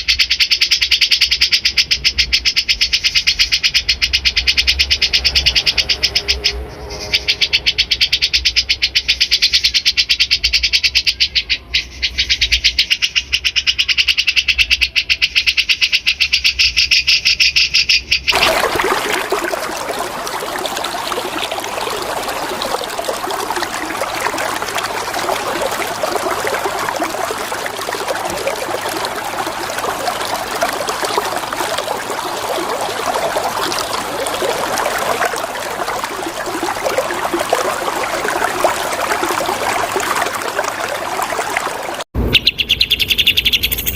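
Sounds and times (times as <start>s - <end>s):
flowing water: 18.3s - 42.1s
songbird trilling: 42.3s - 43.9s.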